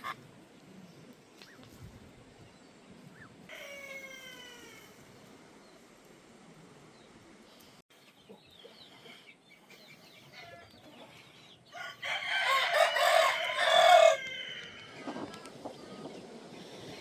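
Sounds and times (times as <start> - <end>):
rooster crowing: 11.8 - 15.0.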